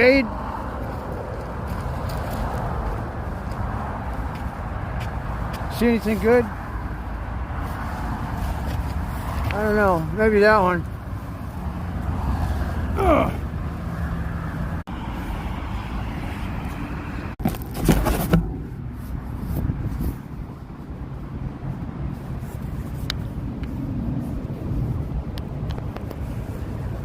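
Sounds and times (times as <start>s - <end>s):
muffled vehicle engine and road noise: 0.0s - 27.0s
rustling and knocks: 17.4s - 18.8s.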